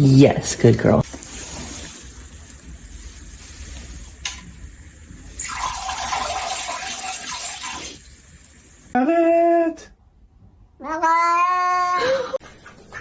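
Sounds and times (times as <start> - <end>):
running water rushing: 5.4 - 8.6.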